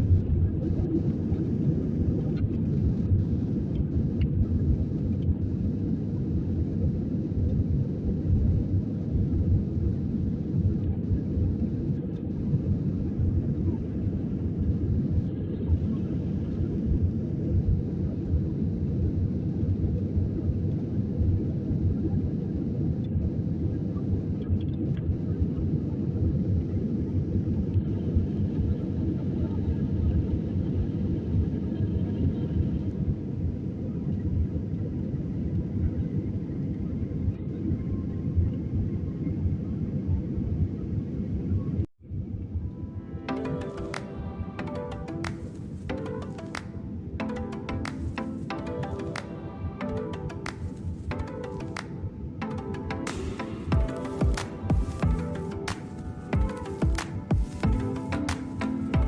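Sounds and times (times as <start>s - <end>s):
airliner cabin engine rumble: 0.0s - 43.0s.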